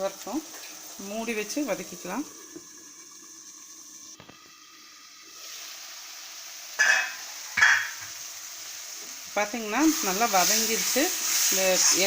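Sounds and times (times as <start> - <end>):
masala sizzling in hot oil: 0.0 - 12.0
spoon scraping a pan: 6.8 - 8.1.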